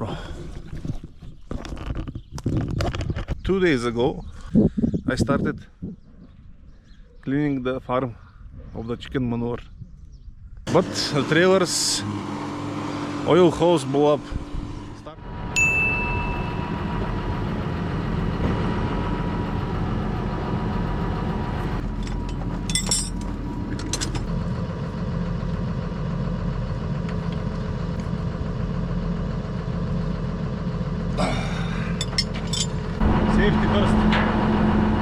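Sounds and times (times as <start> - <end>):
farm machine engine idling: 10.7 - 35.0.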